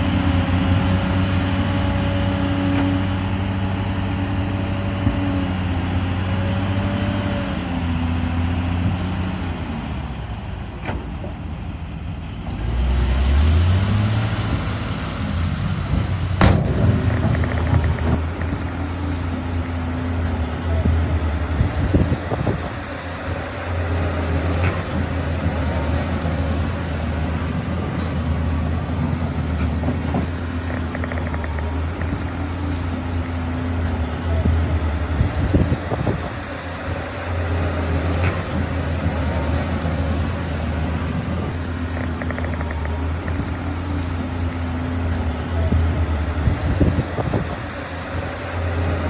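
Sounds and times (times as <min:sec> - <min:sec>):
bulldozer diesel engine running: 0:00.0 - 0:49.0
metallic clanks: 0:16.4 - 0:19.0.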